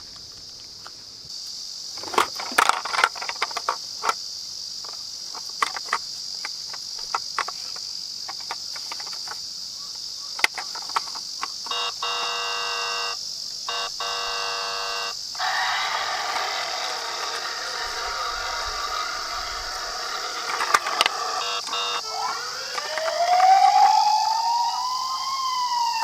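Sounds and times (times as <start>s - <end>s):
toy cars clicking and clacking: 2.0s - 4.2s, 4.8s - 9.4s, 10.4s - 13.0s, 13.7s - 23.6s
buzzing electronic tones: 11.7s - 15.2s, 18.8s - 24.9s
high-pitched hum: 16.8s - 26.0s.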